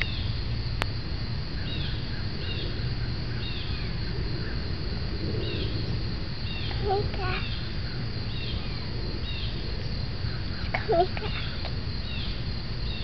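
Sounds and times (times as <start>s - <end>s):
bird calling: 6.5s - 9.6s, 10.3s - 13.0s.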